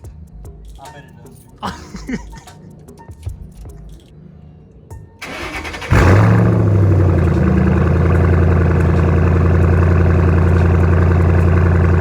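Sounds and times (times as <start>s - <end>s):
car engine starting and idling: 5.2s - 12.0s.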